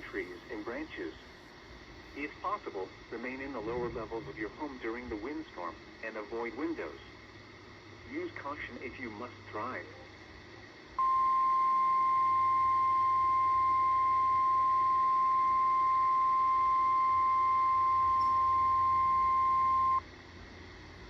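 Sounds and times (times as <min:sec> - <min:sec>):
steady warning alarm tone: 0:11.0 - 0:20.0.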